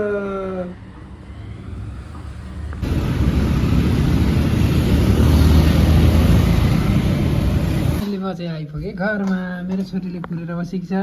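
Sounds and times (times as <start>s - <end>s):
vehicle engine and road rumble: 0.0s - 8.1s.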